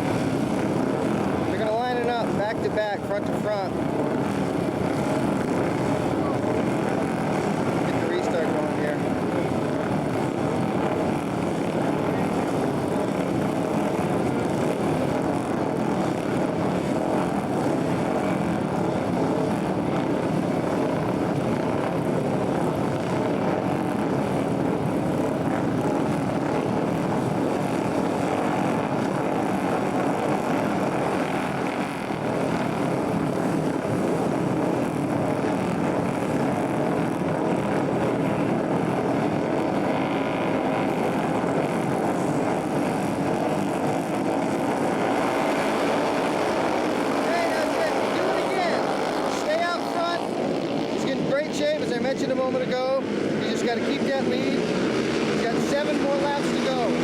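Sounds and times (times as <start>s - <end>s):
motorcycle engines racing: 32.9s - 57.0s.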